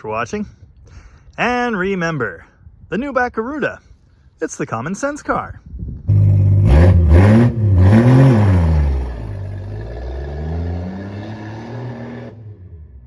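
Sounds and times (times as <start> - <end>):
car engine revving: 6.1 - 13.0.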